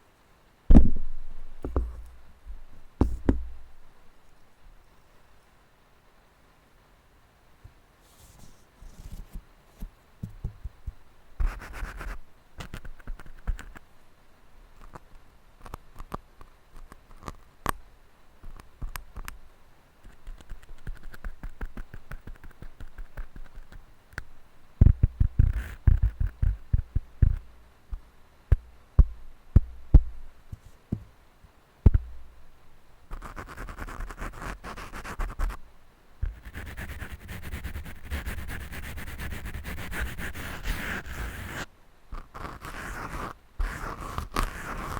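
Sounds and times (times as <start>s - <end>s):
microphone taps: 0.7s - 3.6s, 31.9s - 32.2s
microphone scratching: 36.2s - 44.9s.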